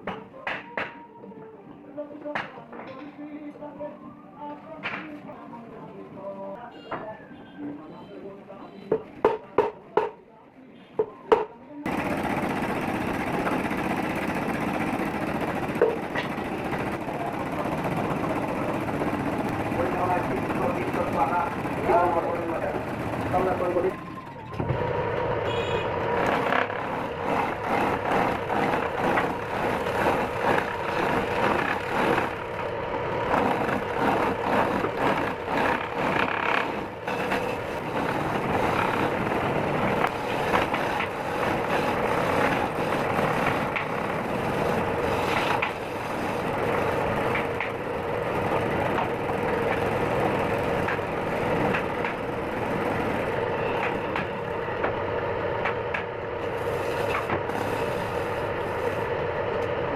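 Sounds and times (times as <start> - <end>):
tool scraping spinning wood: 11.9 - 24.3, 25.8 - 54.9, 55.6 - 59.2
wood lathe motor humming: 11.9 - 55.1, 55.7 - 59.2.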